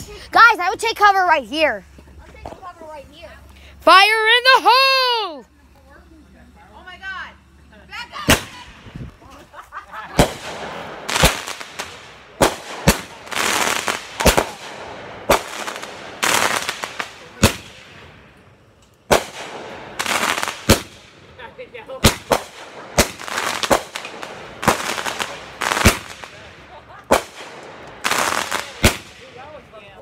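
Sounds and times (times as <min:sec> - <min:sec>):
firework crackling and hissing: 0:00.0 - 0:30.0
loud firework bangs: 0:08.2 - 0:09.0, 0:10.0 - 0:18.3, 0:19.0 - 0:29.6.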